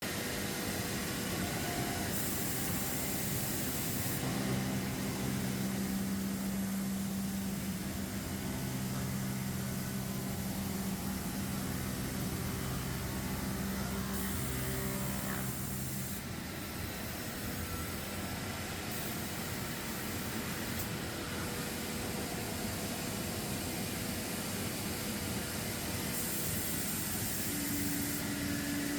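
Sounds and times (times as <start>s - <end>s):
sawmill machinery humming: 4.2s - 16.4s.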